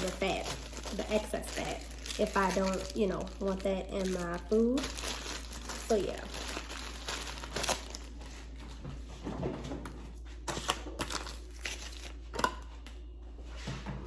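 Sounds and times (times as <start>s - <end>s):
plastic packaging crinkling: 0.0s - 8.6s, 10.5s - 12.3s.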